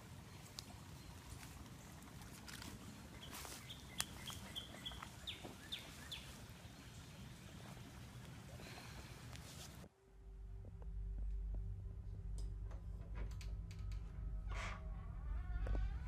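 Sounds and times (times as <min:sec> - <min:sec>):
low outdoor rumble: 0:00.0 - 0:16.0
rustling of person sitting down: 0:07.6 - 0:09.9.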